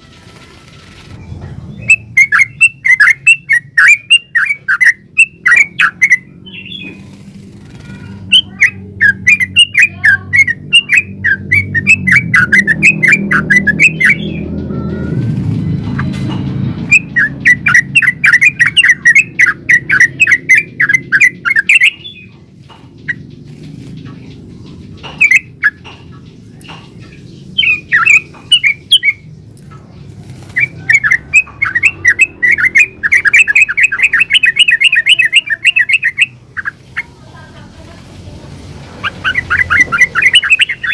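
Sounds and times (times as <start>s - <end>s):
bird singing chattering runs: 1.7s - 37.2s, 39.0s - 40.9s.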